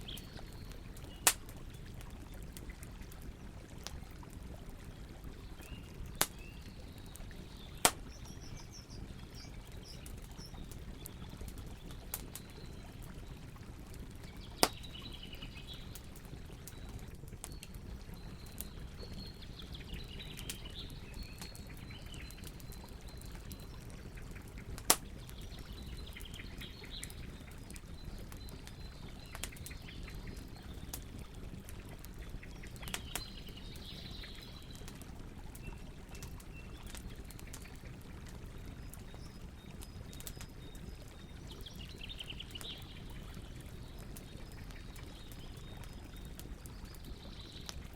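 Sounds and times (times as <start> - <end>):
campfire crackling: 0.0 - 47.9
loud sharp pops of fire: 1.2 - 1.5, 7.8 - 8.2, 24.8 - 25.1.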